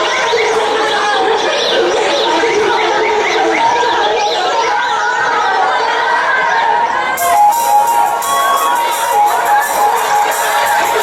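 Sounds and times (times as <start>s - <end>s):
audience cheering: 5.6s - 11.0s
instrumental stage music: 7.2s - 11.0s.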